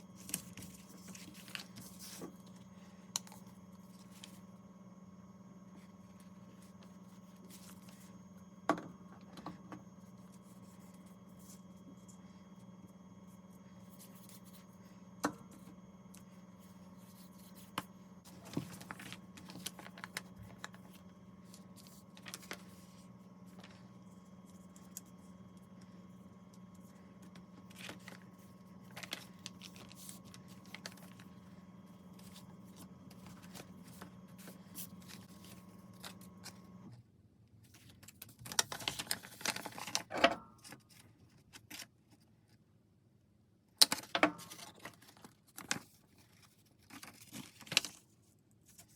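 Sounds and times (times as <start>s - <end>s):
microwave oven humming: 0.0s - 41.4s.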